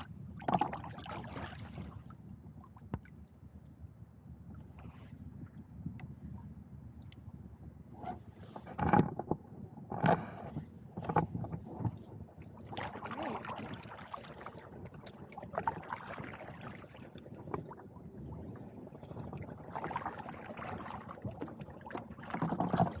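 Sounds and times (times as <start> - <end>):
gear clunking on plastic kayak: 8.6 - 12.0.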